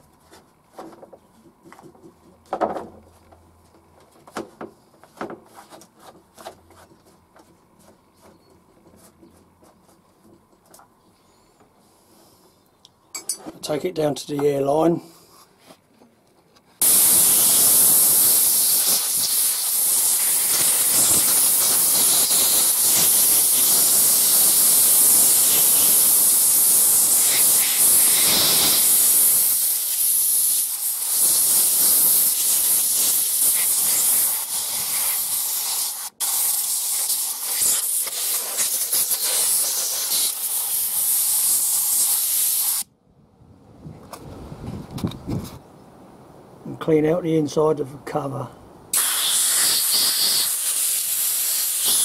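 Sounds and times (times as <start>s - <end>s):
compressed air blow gun hissing: 16.8s - 42.9s, 48.9s - 52.0s.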